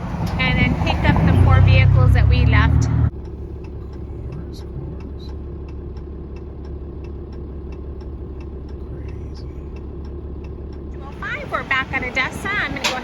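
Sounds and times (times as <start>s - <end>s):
diesel engine droning: 0.0s - 13.0s
faint rapid ticking: 3.1s - 13.0s.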